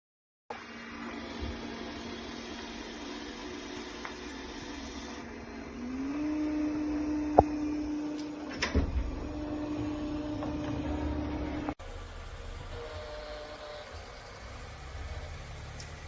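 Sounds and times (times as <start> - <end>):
robot vacuum motor hum: 0.6 - 16.0.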